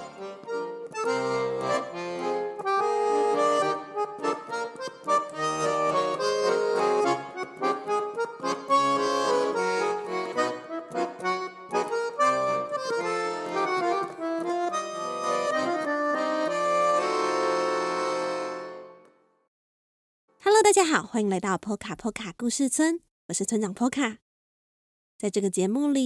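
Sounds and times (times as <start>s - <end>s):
lively instrumental theme music: 0.0s - 19.3s.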